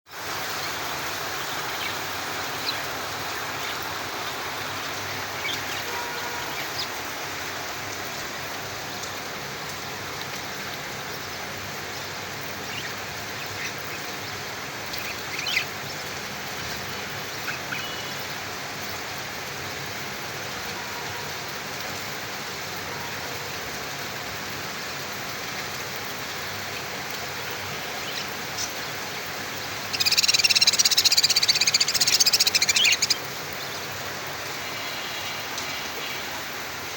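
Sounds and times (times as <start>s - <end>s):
budgies chirping: 29.8s - 33.2s.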